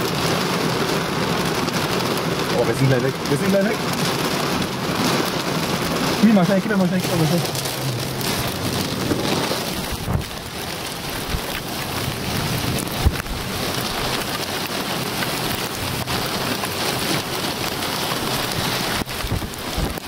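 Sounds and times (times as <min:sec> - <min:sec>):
heavy rain hissing: 0:00.0 - 0:20.0
gusting wind: 0:04.1 - 0:20.0.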